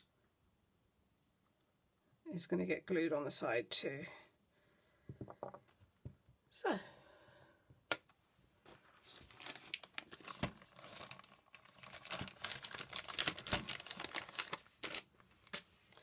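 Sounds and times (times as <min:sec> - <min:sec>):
packaging crinkling and rustling: 0:08.7 - 0:16.0.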